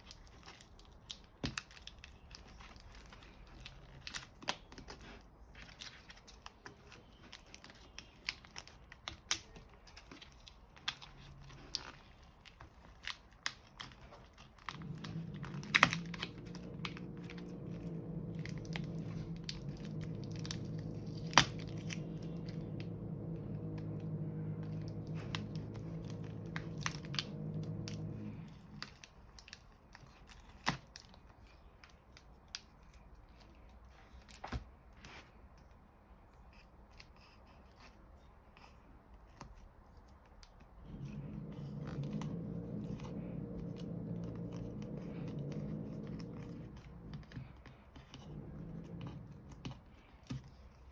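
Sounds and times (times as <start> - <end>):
plastic parts clicking and crinkling: 0.0 - 34.7
low motor hum: 13.8 - 29.5, 40.8 - 50.9.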